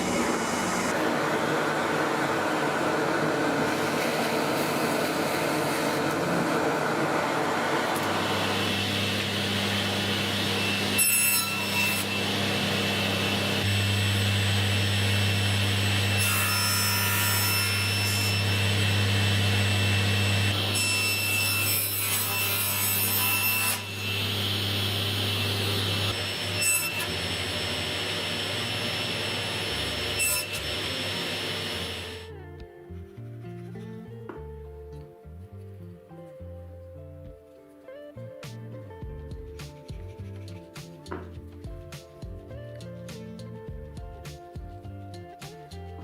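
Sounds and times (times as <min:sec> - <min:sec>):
electric saw cutting wood: 0:00.0 - 0:32.3.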